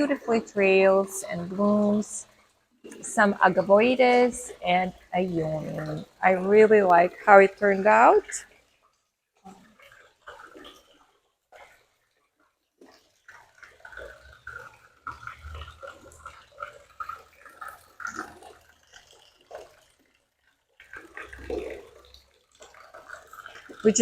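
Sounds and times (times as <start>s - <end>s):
fountain water splashing: 0.0s - 8.5s, 20.8s - 24.0s.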